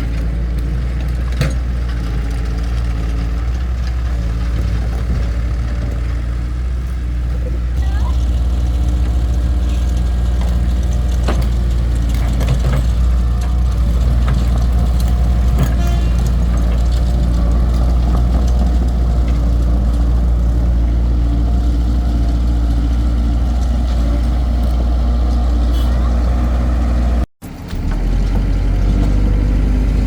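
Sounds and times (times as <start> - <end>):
clunks and knocks: 0.0 - 6.3, 8.1 - 25.7
excavator engine idling: 0.0 - 30.0.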